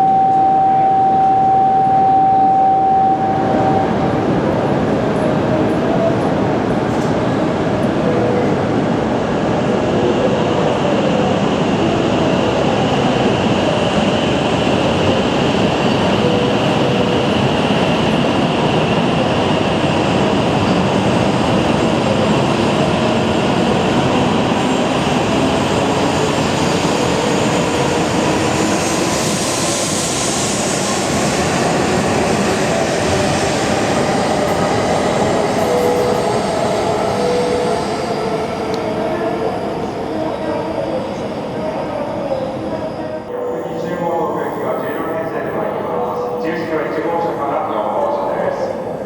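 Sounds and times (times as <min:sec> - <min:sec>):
brief high tones: 0:00.0 - 0:04.1.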